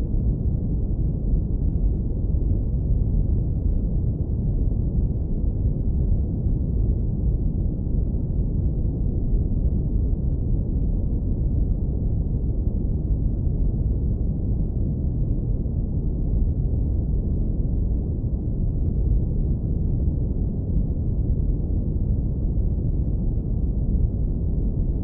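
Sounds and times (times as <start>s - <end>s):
deep rumbling brown noise: 0.0s - 25.0s.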